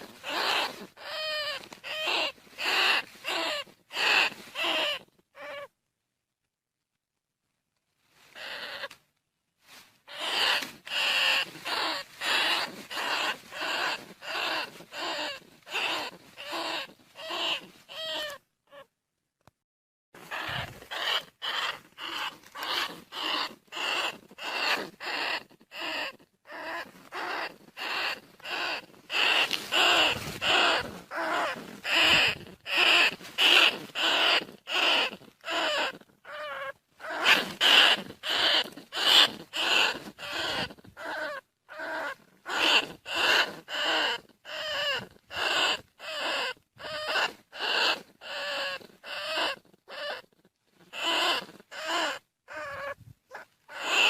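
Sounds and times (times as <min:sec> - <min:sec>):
rat squeaks: 0:00.0 - 0:05.7, 0:08.4 - 0:09.0, 0:10.1 - 0:18.9, 0:20.2 - 0:54.0.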